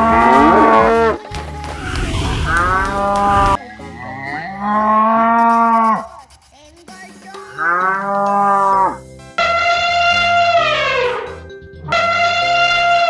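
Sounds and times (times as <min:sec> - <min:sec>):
cow mooing: 0:00.0 - 0:01.2, 0:04.0 - 0:06.0, 0:07.6 - 0:09.0.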